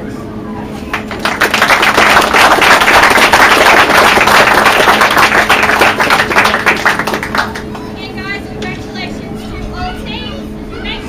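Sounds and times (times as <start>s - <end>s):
audience applauding: 0.9s - 7.7s.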